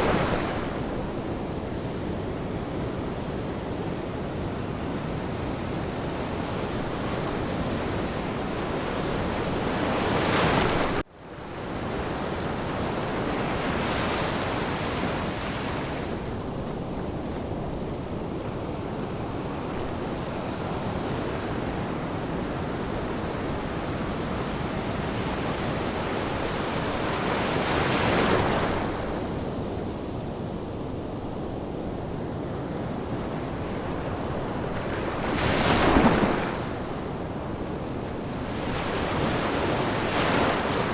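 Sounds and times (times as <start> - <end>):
ocean waves crashing on beach: 0.0 - 40.9.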